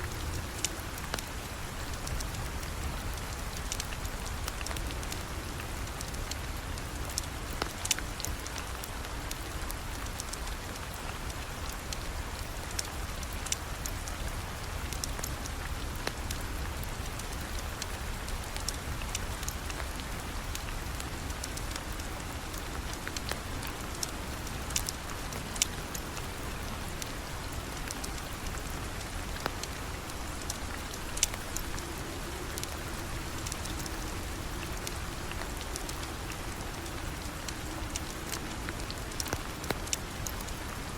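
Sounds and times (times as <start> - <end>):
steady rain falling: 0.0 - 40.9
sharp ticks and pops: 12.7 - 26.1, 27.0 - 40.7.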